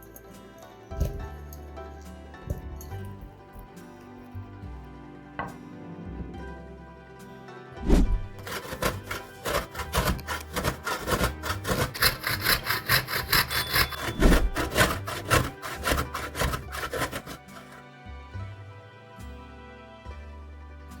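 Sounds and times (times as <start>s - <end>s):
rapid scraping strokes: 7.8s - 17.8s.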